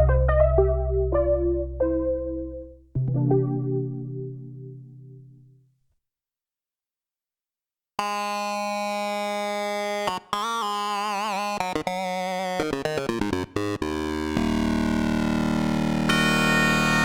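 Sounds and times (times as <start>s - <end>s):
synthesizer melody: 0.0s - 5.4s.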